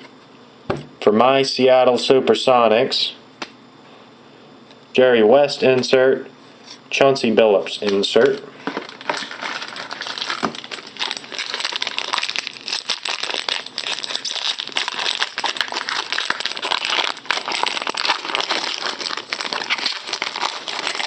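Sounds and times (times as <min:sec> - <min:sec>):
wrappers crinkling: 0:08.2 - 0:21.0.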